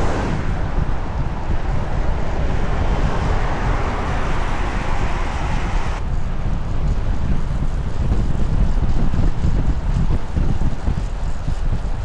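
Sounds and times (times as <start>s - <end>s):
tyres hissing on wet pavement: 0.0s - 6.0s
wind buffeting microphone: 0.0s - 12.0s.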